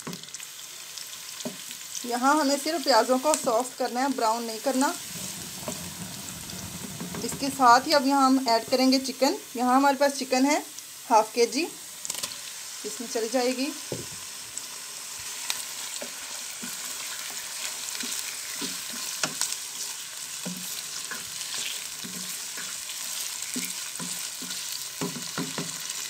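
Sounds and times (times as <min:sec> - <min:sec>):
chicken sizzling in hot oil: 0:00.0 - 0:26.0
spatula scraping pan: 0:04.7 - 0:08.8, 0:15.8 - 0:26.0.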